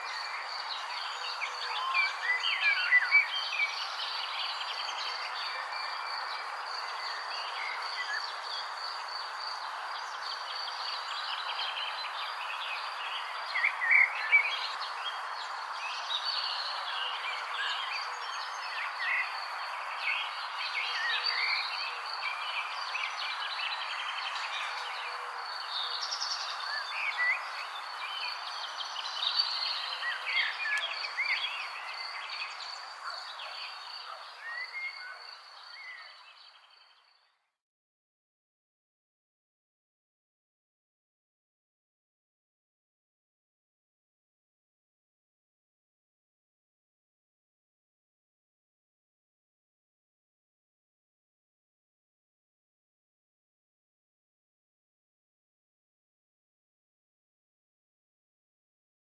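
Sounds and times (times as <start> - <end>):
songbirds chirping: 0.0 - 37.6.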